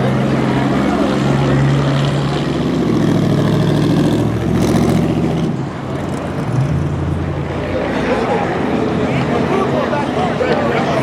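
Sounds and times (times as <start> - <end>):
car engine running at low revs: 2.0 - 8.7.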